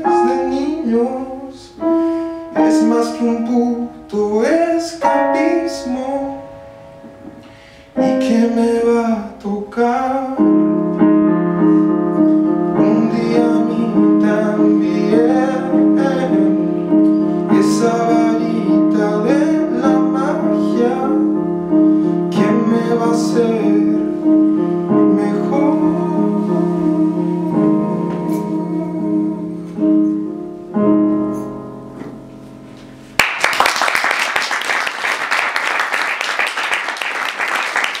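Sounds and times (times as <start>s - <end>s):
person singing: 0.0s - 6.6s, 8.0s - 11.0s, 11.6s - 31.2s
piano chords: 0.0s - 38.0s
audience applause: 33.2s - 38.0s.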